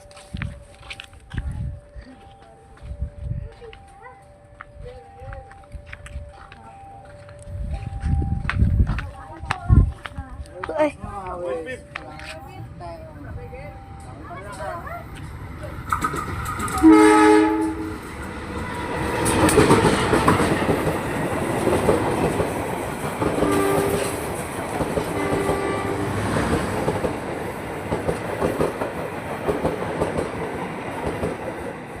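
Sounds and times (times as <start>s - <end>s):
train wheels rumbling on rails: 4.6s - 32.0s
train horn blasts: 16.7s - 18.1s, 23.4s - 24.3s, 25.1s - 26.6s.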